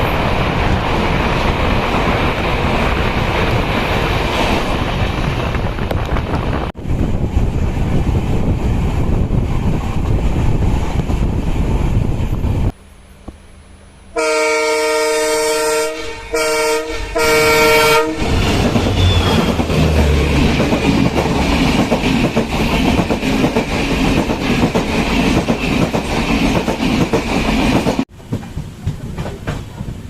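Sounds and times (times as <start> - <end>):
train running: 0.0 - 30.0
train horn blasts: 14.1 - 19.6.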